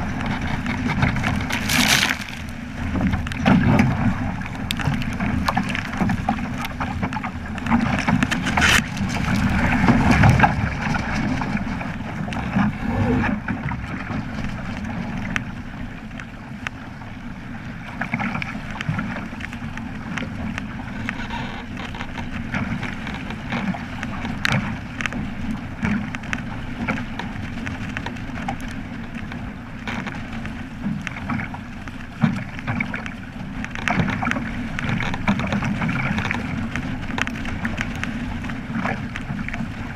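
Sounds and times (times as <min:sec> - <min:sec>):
wind buffeting microphone: 0:00.0 - 0:16.1
water splashing against a hull: 0:00.0 - 0:39.9.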